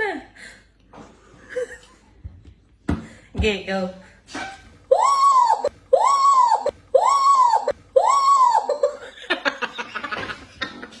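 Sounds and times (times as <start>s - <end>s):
laughter: 1.4s - 2.2s, 8.7s - 11.0s.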